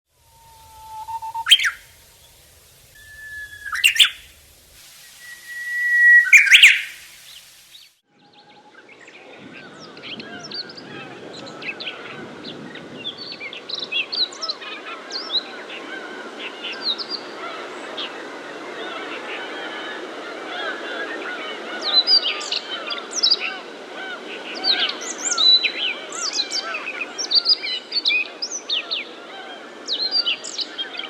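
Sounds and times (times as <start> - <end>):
small birds chirping: 0.9 - 7.9.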